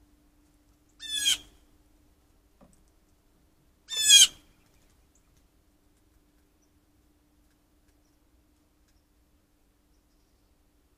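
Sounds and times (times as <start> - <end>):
short bird calls: 3.9 - 4.6.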